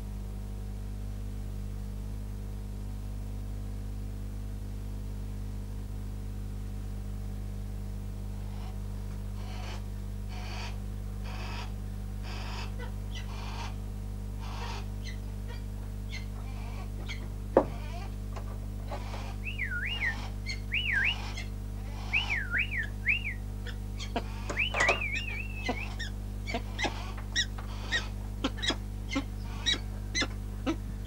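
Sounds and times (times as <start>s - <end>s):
steady electrical hum: 0.0s - 31.0s
bird harsh rasping calls: 9.4s - 13.8s, 14.4s - 18.1s, 18.8s - 30.8s.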